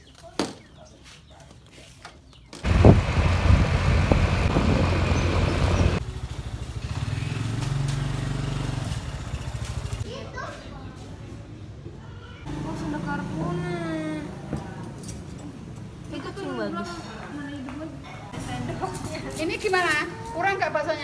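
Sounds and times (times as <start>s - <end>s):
vehicle engine hum: 2.6s - 10.0s
road and wind noise: 2.6s - 10.1s.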